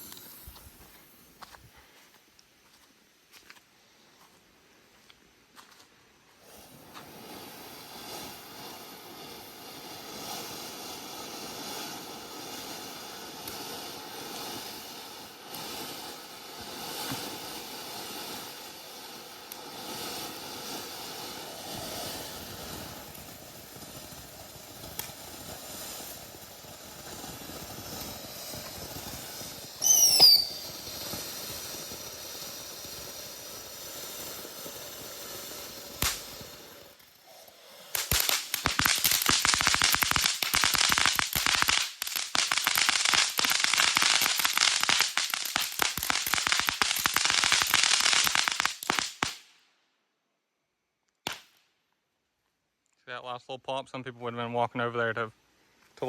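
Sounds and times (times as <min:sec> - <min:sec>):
firework burning with hiss: 0:00.0 - 0:52.8
loud falling whistle: 0:29.8 - 0:30.6.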